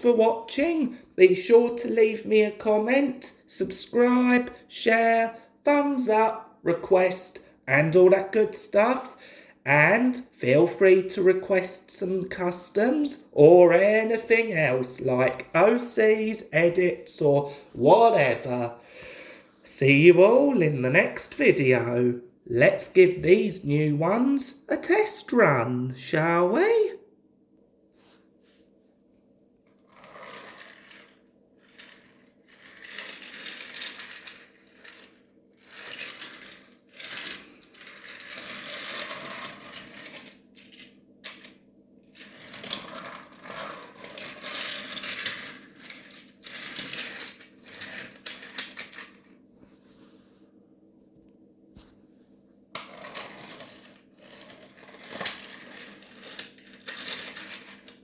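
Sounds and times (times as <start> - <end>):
toy trains clattering on track: 30.0 - 41.5, 42.2 - 49.3, 52.8 - 58.0.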